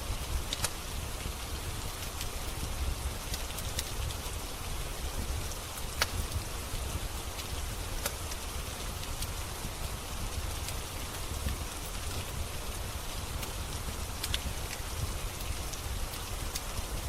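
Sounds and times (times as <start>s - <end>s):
steady rain hiss: 0.0s - 17.0s
wood fire crackling pops: 0.5s - 0.8s, 5.2s - 6.4s, 7.4s - 12.3s, 13.3s - 16.8s.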